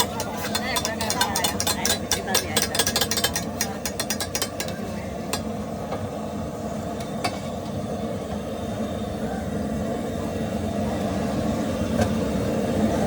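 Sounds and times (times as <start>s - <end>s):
metal utensil tapping on griddle: 0.0s - 5.5s.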